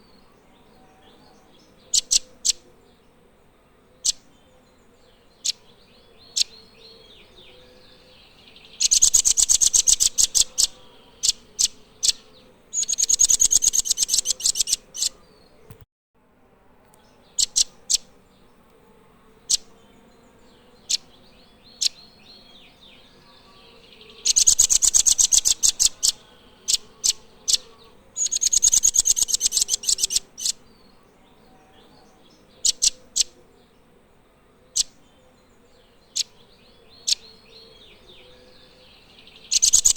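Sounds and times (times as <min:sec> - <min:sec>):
bird trilling: 0:02.0 - 0:02.6, 0:08.8 - 0:15.8, 0:17.4 - 0:18.1, 0:24.2 - 0:30.6, 0:32.6 - 0:33.3, 0:39.5 - 0:39.9.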